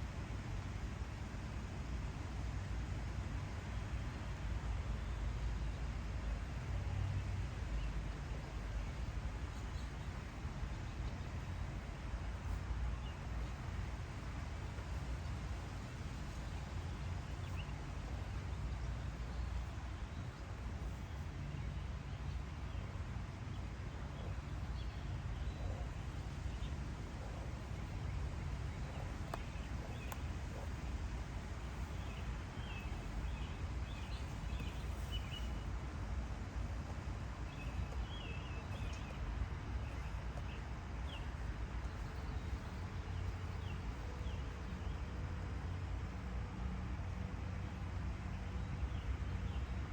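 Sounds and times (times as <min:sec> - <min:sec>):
steady low rumble: 0:00.0 - 0:46.2
small birds chirping: 0:05.1 - 0:46.3.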